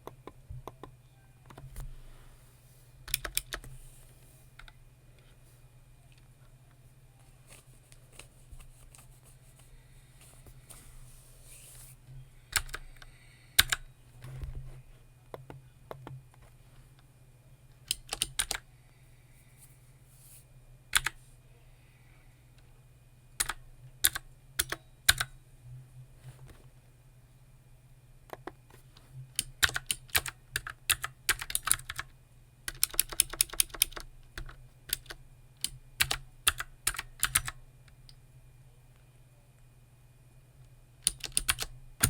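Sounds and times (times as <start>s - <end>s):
low steady hum: 0.0s - 42.0s
keyboard typing clicks: 3.1s - 3.7s, 12.5s - 13.9s, 17.9s - 18.6s, 20.9s - 21.2s, 23.4s - 25.3s, 29.4s - 32.1s, 32.7s - 38.1s, 41.0s - 41.7s.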